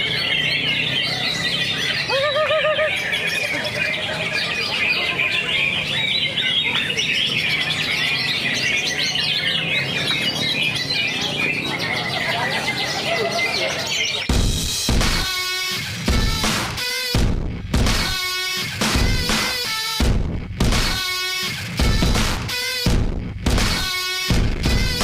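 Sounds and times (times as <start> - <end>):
bird chirps and trills: 0.0 - 14.3.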